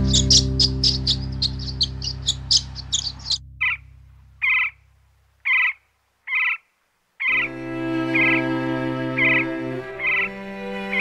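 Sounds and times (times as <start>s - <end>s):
background music: 0.0s - 4.8s, 7.3s - 11.0s
short bird calls: 0.0s - 4.8s, 5.4s - 8.5s, 9.1s - 11.0s
rapid high bird chirping: 0.0s - 11.0s.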